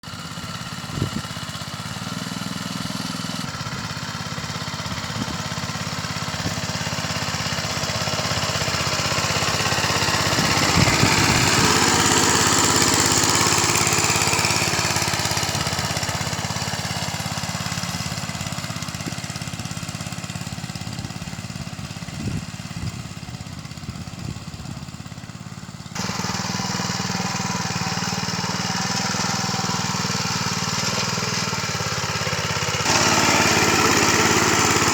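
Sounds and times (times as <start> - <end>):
small tractor engine running: 0.0 - 34.9.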